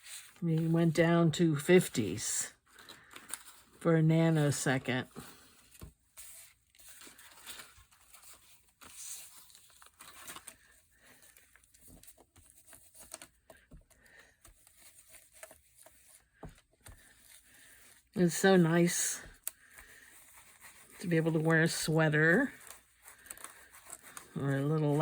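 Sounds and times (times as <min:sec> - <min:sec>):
paper rustling and tearing: 0:05.1 - 0:18.4, 0:19.2 - 0:25.0.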